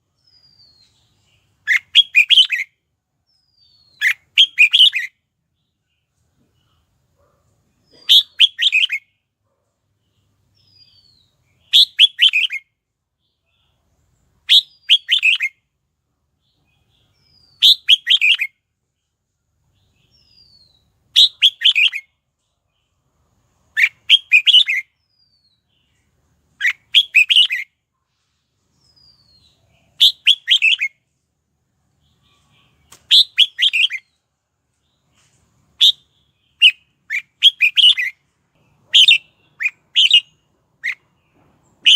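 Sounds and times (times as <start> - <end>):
bulbul singing: 0.1 - 6.0, 23.7 - 27.8, 28.8 - 31.0, 32.0 - 34.2, 35.8 - 41.9.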